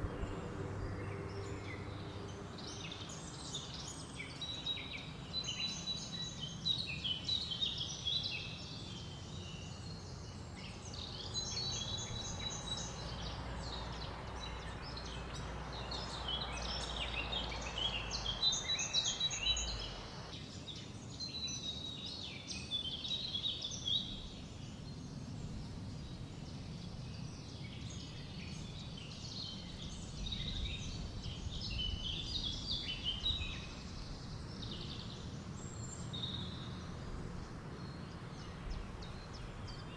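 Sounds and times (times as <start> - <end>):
low wind rumble: 0.0 - 3.8, 10.8 - 20.3, 24.0 - 39.9
songbirds chirping and trilling: 0.0 - 39.9
soft hiss: 17.0 - 20.3.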